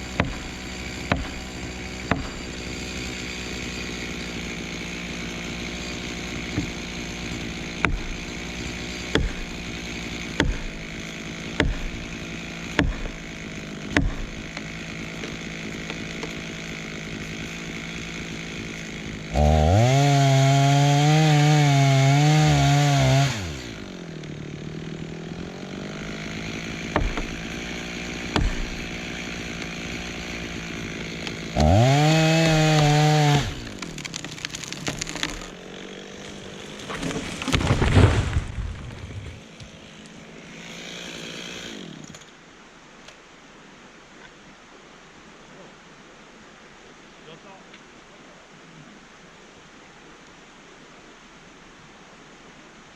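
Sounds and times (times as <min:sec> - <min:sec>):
chainsaw idling and revving: 0:00.0 - 0:42.4
sharp knocks: 0:02.1 - 0:02.5, 0:07.8 - 0:08.2, 0:10.4 - 0:10.8, 0:11.6 - 0:12.1, 0:12.7 - 0:13.3, 0:13.9 - 0:16.4, 0:26.9 - 0:27.4, 0:28.3 - 0:28.8.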